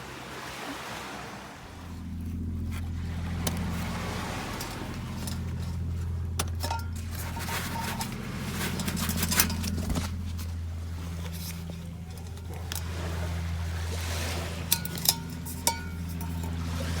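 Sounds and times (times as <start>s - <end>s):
boat engine droning: 0.0s - 17.0s
metallic clinks and rattles: 2.2s - 17.0s.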